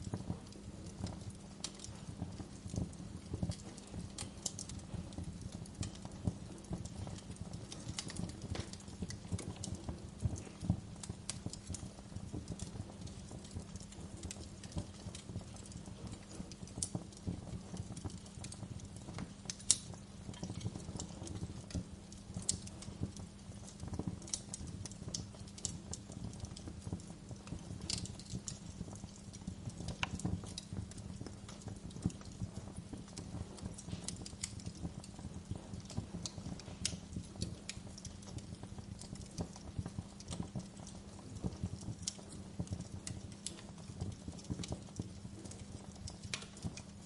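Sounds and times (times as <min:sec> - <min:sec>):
wood fire crackling and popping: 0:00.0 - 0:47.0.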